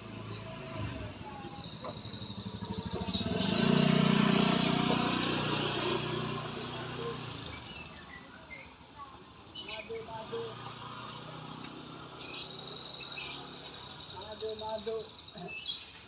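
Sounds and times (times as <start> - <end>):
vehicle passing on road: 0.0 - 8.1, 9.6 - 14.4.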